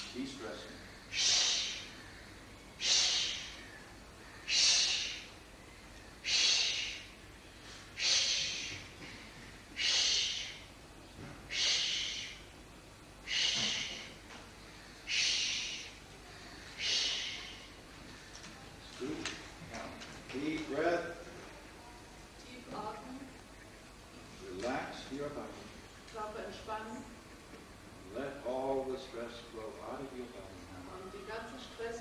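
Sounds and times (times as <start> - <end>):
person breathing hard through nose: 1.1 - 2.0, 2.8 - 3.7, 4.4 - 5.4, 6.2 - 10.7, 11.5 - 12.4, 13.2 - 14.2, 15.0 - 17.8.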